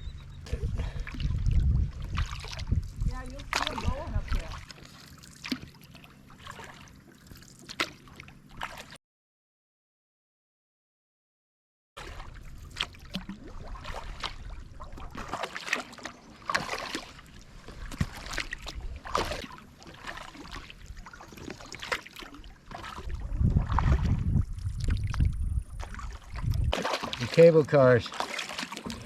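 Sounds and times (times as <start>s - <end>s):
low rumble: 0.0s - 4.6s, 23.1s - 26.7s
paddle splashing and dripping: 0.4s - 9.0s, 12.0s - 29.0s.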